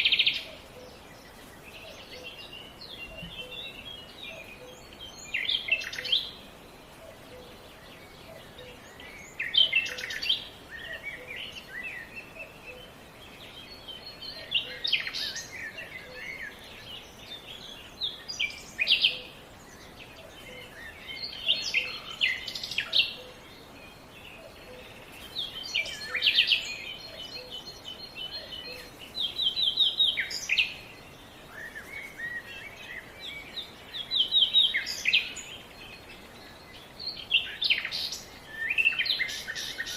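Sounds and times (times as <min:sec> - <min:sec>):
soft steady background noise: 0:00.0 - 0:39.9
songbird singing: 0:00.0 - 0:39.9.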